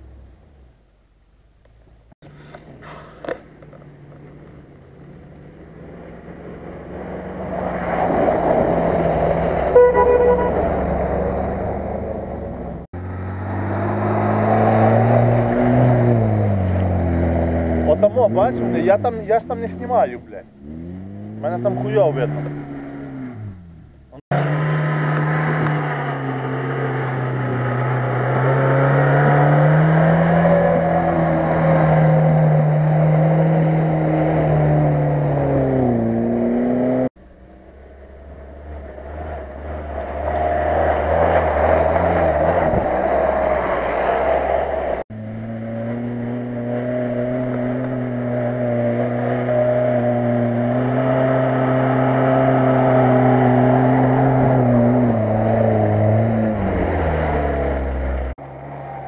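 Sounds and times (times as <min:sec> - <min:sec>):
off-road engines under load: 0:00.0 - 0:59.0.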